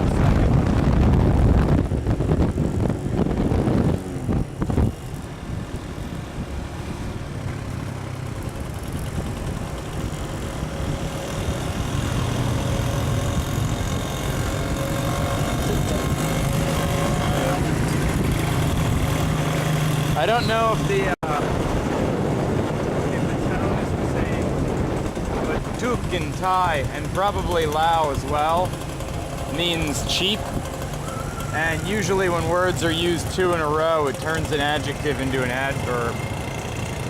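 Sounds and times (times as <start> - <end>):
motorcycle engine: 0.0 - 37.0
wind and road noise: 0.0 - 37.0.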